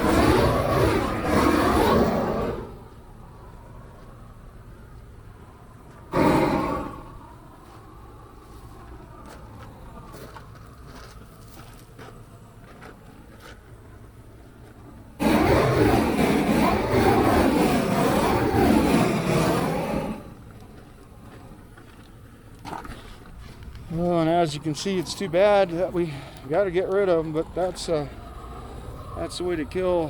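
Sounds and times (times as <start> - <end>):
blow torch flame blasting: 0.0 - 3.2, 6.0 - 8.5, 15.1 - 20.7.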